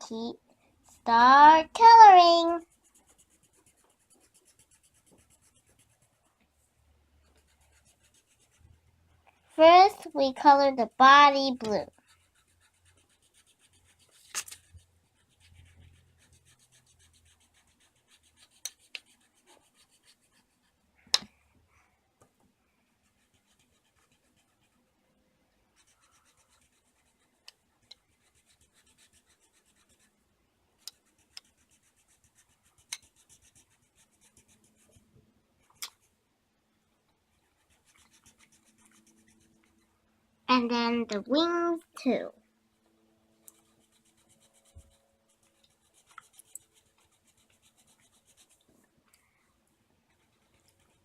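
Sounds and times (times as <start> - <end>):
colouring tool scratching on paper: 1.0 - 6.6, 7.2 - 20.9, 22.9 - 25.0, 25.7 - 30.2, 30.8 - 36.1, 37.2 - 39.9, 43.4 - 48.7, 50.0 - 51.0.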